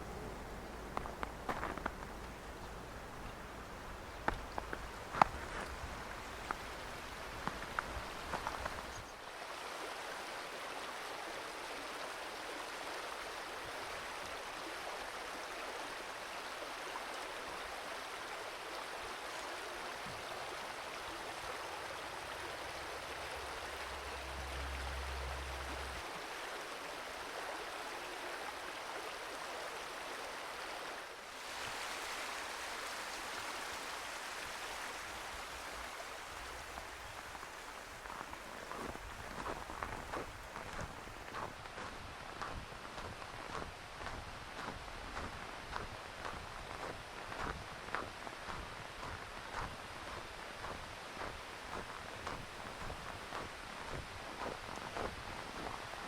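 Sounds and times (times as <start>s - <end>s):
stream flowing: 0.0s - 56.0s
low rumble: 22.8s - 26.0s.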